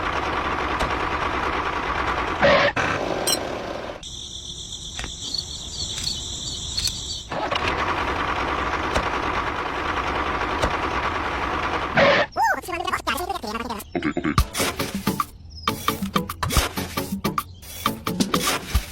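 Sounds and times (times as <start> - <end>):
high-pitched chirring whine: 3.2 - 7.3.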